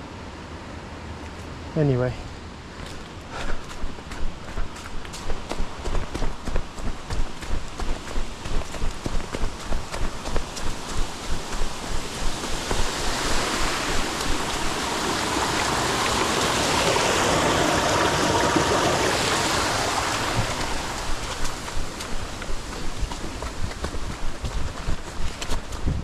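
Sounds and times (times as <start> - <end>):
footsteps on muddy trail: 2.3 - 15.7, 20.0 - 26.0
stream rushing: 2.3 - 26.0.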